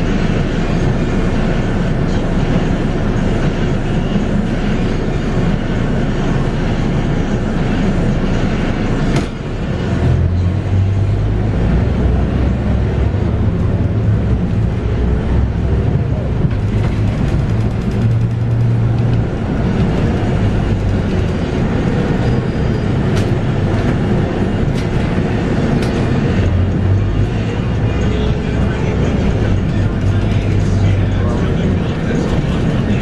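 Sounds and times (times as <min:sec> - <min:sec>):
bus diesel engine drone: 0:00.0 - 0:33.0
road and body noise: 0:06.9 - 0:33.0.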